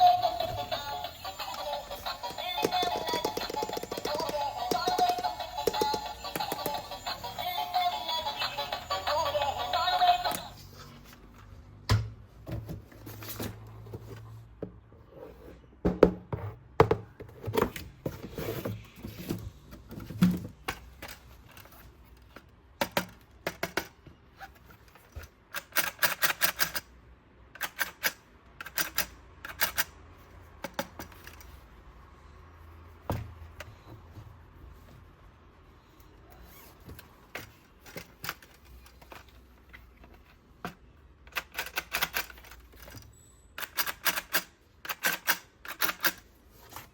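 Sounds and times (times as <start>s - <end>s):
toys clicking and rattling: 0.0s - 10.6s, 24.7s - 26.9s, 27.6s - 30.0s, 41.2s - 46.3s.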